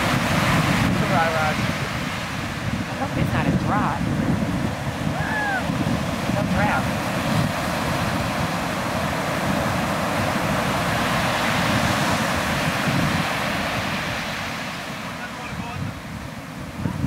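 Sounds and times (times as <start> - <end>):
ocean surf washing on beach: 0.0 - 17.0
wind rumbling on microphone: 0.0 - 17.0.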